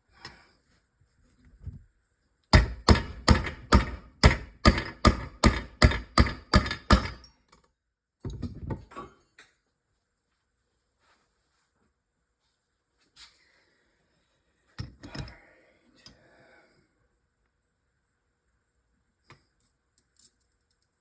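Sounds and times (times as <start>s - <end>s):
hammer striking: 2.5s - 7.3s.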